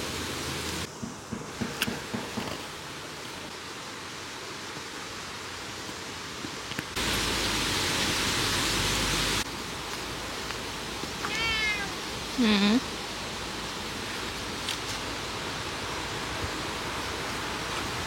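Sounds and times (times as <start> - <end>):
steady hiss: 0.0 - 18.0
cat meowing: 11.2 - 12.0.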